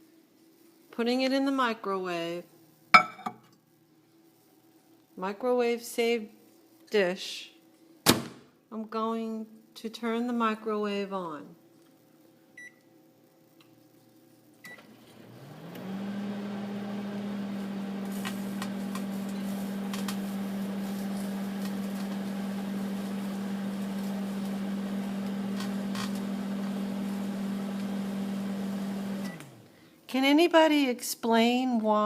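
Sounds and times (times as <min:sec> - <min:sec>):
microwave beep: 0:12.6 - 0:12.8, 0:14.6 - 0:15.0, 0:29.1 - 0:29.4
microwave humming: 0:14.5 - 0:29.9.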